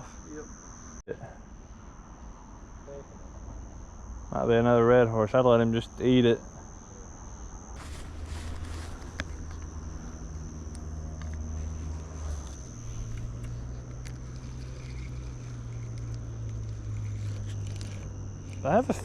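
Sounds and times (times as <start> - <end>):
high insect drone: 0.0 - 19.0
low engine hum: 7.8 - 19.0.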